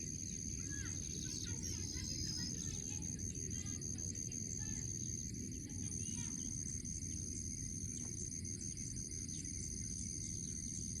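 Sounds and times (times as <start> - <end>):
insects trilling: 0.1 - 10.8
faint bird chirps: 0.6 - 3.2.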